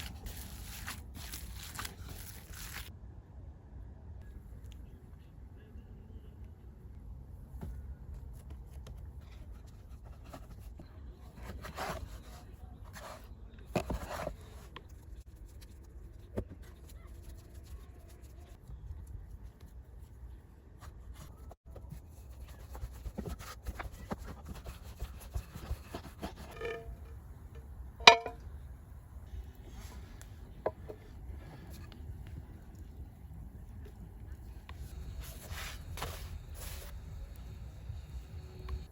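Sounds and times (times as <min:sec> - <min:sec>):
clicks and knocks: 0:28.0 - 0:28.4.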